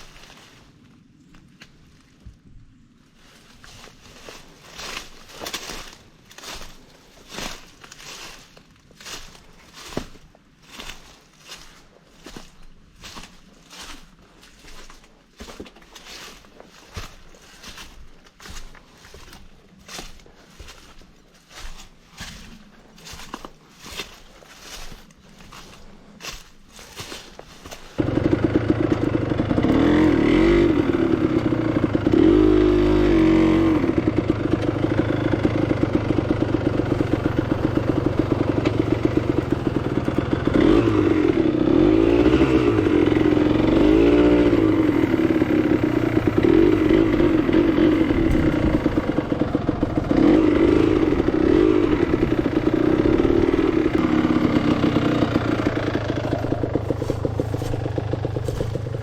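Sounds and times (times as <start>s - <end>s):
motorcycle engine revving: 27.9s - 59.0s.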